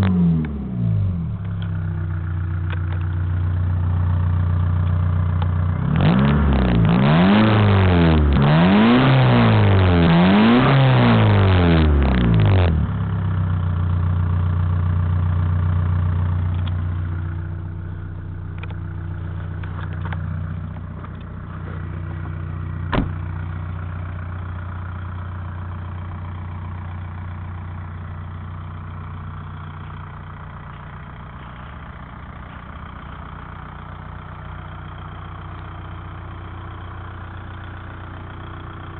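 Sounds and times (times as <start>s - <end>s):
diesel engine revving and idling: 0.0s - 38.9s.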